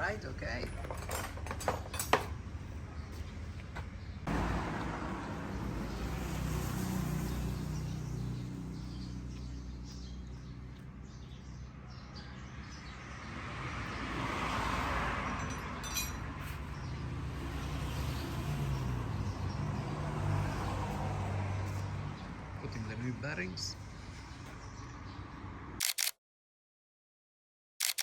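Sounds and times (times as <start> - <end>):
vehicles passing: 0.0 - 25.9
sharp clicks: 25.8 - 26.2, 27.8 - 28.0.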